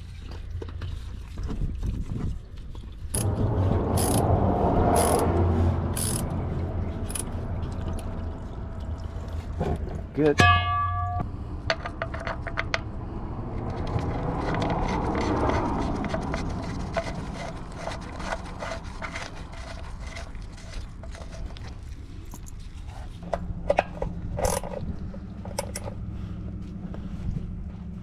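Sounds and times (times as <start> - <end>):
tools clicking and scraping: 3.1 - 4.3, 4.9 - 8.1, 13.6 - 26.0
steady low hum: 16.0 - 28.0.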